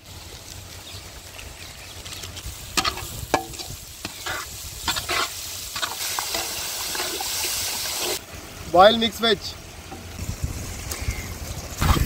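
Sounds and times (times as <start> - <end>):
food sizzling in pan: 0.0 - 12.0
spatula scraping and knocking pan: 2.8 - 8.2.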